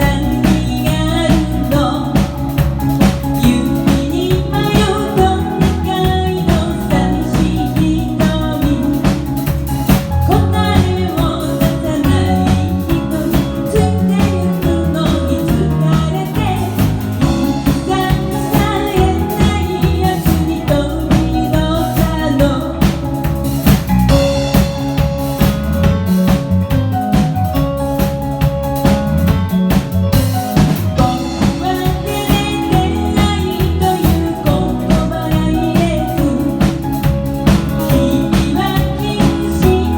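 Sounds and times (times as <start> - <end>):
woman singing: 0.0 - 23.4, 30.9 - 39.9
pop band playing: 0.0 - 39.9.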